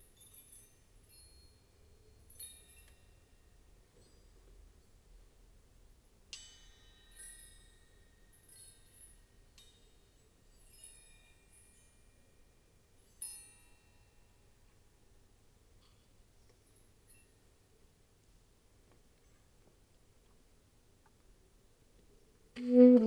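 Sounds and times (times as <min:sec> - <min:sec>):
light tinkling: 0:00.0 - 0:20.6
high metallic chimes ringing: 0:06.4 - 0:14.2.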